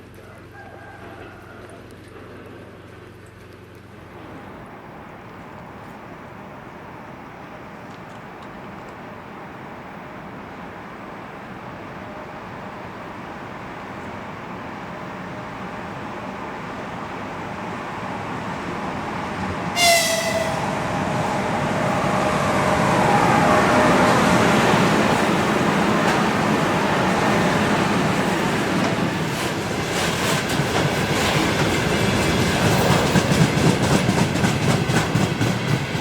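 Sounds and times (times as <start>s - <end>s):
freight train running: 3.9s - 36.0s
high-pitched train whistle: 19.7s - 24.4s.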